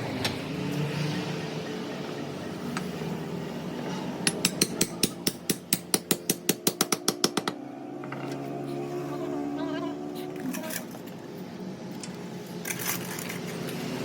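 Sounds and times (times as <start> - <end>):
hammer striking metal: 4.2 - 7.6.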